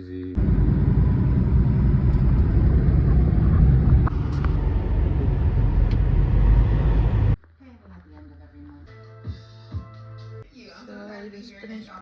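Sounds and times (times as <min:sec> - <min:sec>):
vehicle rumble and road noise: 0:00.4 - 0:07.4.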